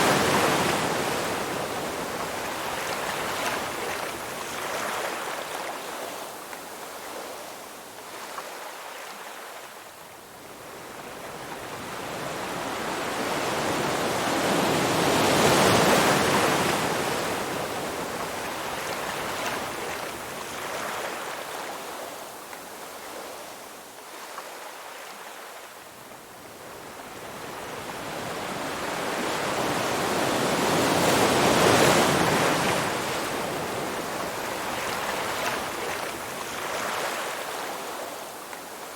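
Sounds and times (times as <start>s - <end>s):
ocean waves washing in: 0.0s - 9.7s.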